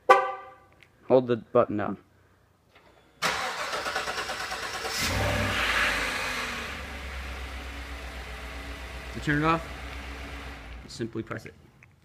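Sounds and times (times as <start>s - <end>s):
car engine revving and idling: 3.9s - 11.0s.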